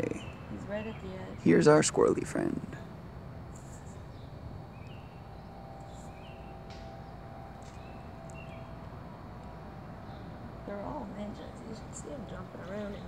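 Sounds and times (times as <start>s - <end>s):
low steady background hum: 0.0s - 13.0s.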